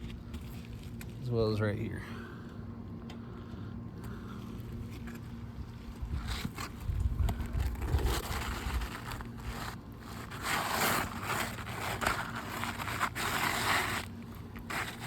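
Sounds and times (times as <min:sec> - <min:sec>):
wind rumble on microphone: 0:05.6 - 0:09.6
shingle scraping and rustling: 0:06.0 - 0:15.0.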